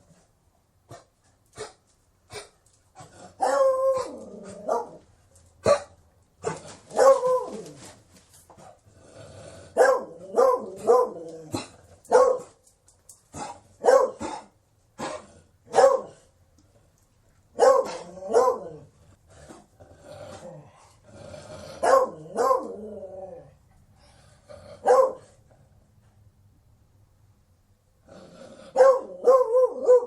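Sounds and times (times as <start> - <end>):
dog barking and howling: 3.4 - 5.0, 6.9 - 7.8, 9.8 - 12.5, 13.8 - 14.4, 17.6 - 18.9, 21.8 - 23.5, 24.8 - 25.3, 28.8 - 30.0.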